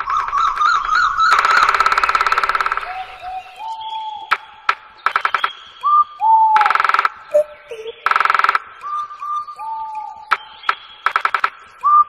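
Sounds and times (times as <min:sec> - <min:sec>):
sharp clicks: 0:00.0 - 0:02.9, 0:03.6 - 0:05.9, 0:06.6 - 0:09.0, 0:10.3 - 0:11.9
harsh rapid rattling calls: 0:00.0 - 0:03.3, 0:04.3 - 0:05.8, 0:06.6 - 0:08.8, 0:10.3 - 0:11.8
bird whistled notes: 0:02.7 - 0:12.0.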